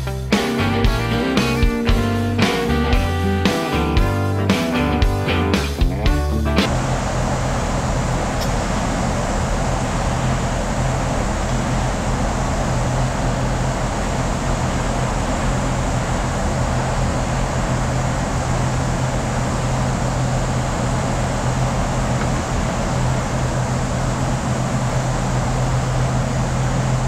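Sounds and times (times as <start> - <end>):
mechanical running hum: 6.6 - 27.0.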